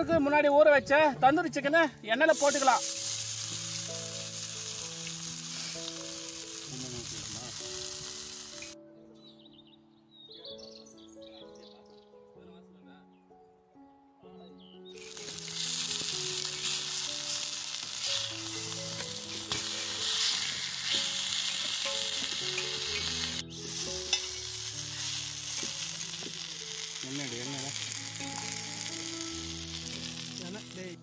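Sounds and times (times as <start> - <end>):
chicken sizzling in hot oil: 2.3 - 8.8, 15.0 - 31.0.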